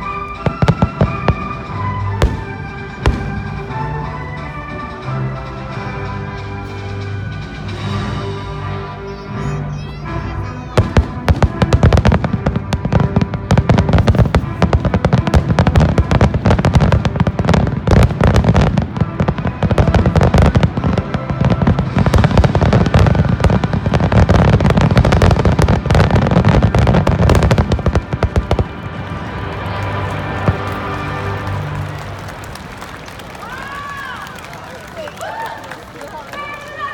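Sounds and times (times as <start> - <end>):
faint music: 0.0 - 36.9.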